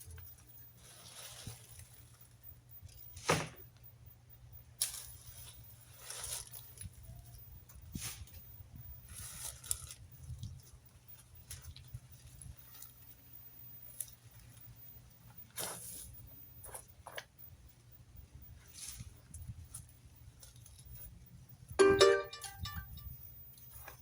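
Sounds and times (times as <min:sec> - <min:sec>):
yard debris rustling and scraping: 0:00.0 - 0:03.8, 0:04.8 - 0:17.5, 0:18.6 - 0:21.2.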